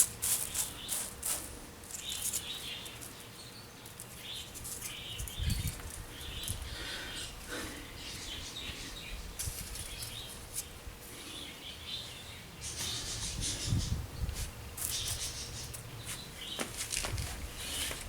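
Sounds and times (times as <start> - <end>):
low wind rumble: 13.2 - 14.8.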